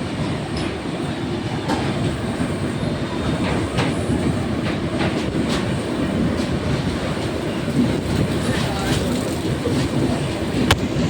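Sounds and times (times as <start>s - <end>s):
train rumbling on track: 0.0s - 11.0s
wheels clicking over rail joints: 3.2s - 11.0s.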